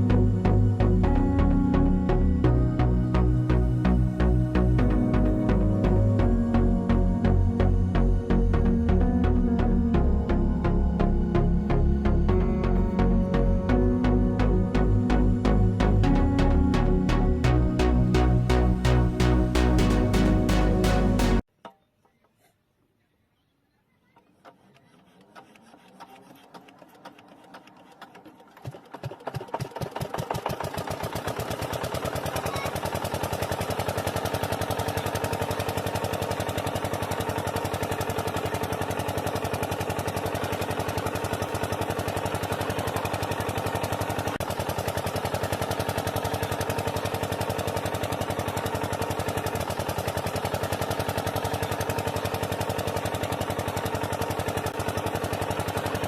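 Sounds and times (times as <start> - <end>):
small engine water pump running: 24.4 - 56.0.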